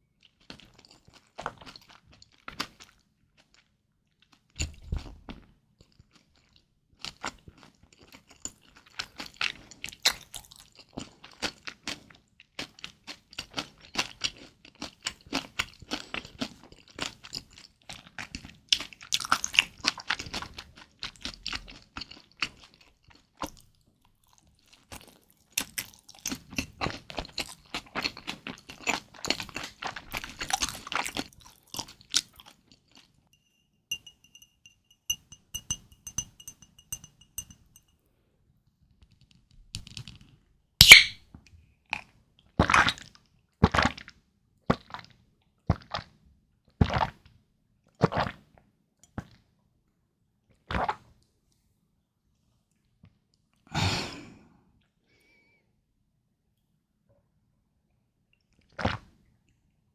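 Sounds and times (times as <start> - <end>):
chewing crunchy food: 0.1 - 33.3, 41.8 - 46.2.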